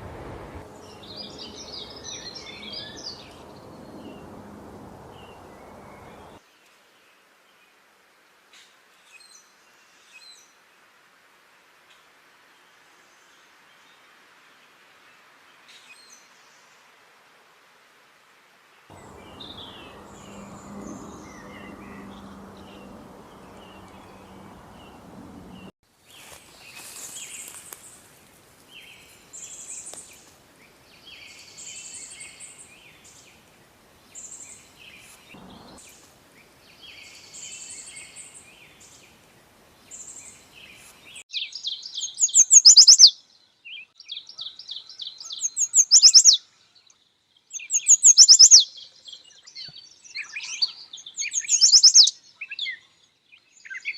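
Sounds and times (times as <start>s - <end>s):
low steady hum: 0.0s - 6.4s, 18.9s - 25.7s, 35.4s - 35.8s
songbirds singing: 0.0s - 6.4s, 18.9s - 25.7s, 34.1s - 39.2s, 39.8s - 53.9s
rapid trilled bird phrases: 18.9s - 25.7s.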